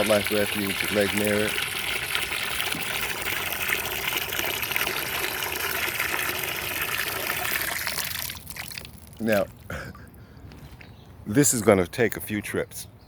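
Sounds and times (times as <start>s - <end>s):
water pouring into a pan: 0.0s - 9.2s.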